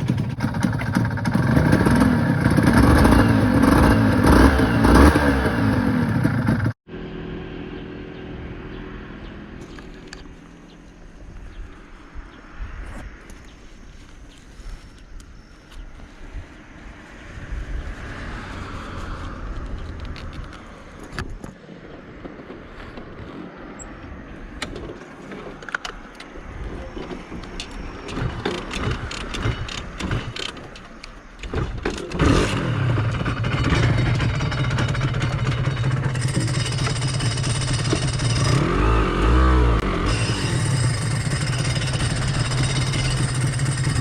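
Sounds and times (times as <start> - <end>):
motorcycle engine running: 0.0 - 11.2, 31.5 - 44.0.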